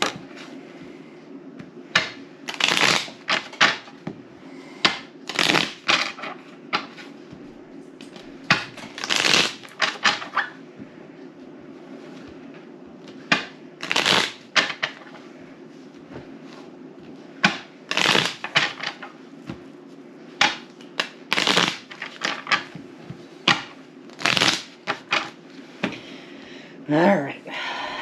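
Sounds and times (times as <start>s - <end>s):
cards being shuffled: 2.0s - 3.9s, 4.9s - 7.1s, 8.0s - 10.5s, 13.0s - 15.2s, 17.4s - 19.6s, 20.4s - 22.8s, 23.5s - 25.9s.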